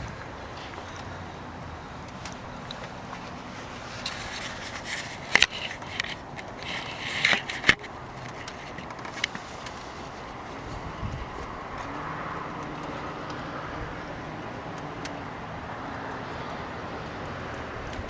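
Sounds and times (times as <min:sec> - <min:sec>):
scraping and rubbing handling noises: 0:02.0 - 0:11.9.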